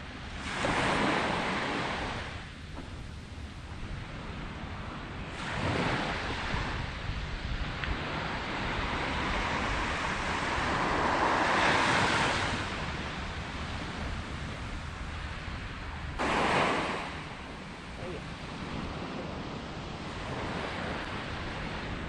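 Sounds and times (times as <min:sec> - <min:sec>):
wind on microphone: 0:00.0 - 0:22.0
surf breaking on sand: 0:05.2 - 0:22.0.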